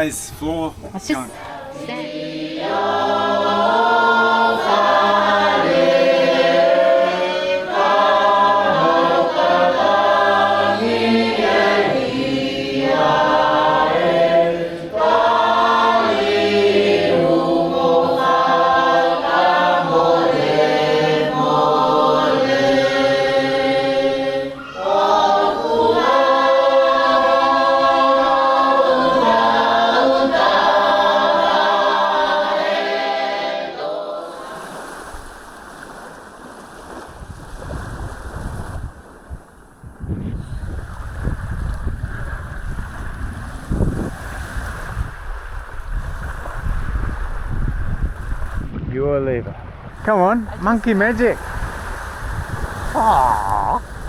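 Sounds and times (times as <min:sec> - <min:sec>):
choir singing in harmony: 0:01.3 - 0:34.8.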